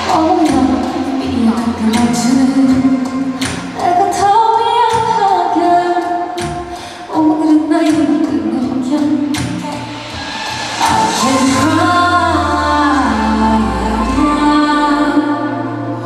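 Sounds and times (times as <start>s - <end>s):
musical accompaniment with beat: 0.0s - 16.0s
woman singing: 0.0s - 16.0s.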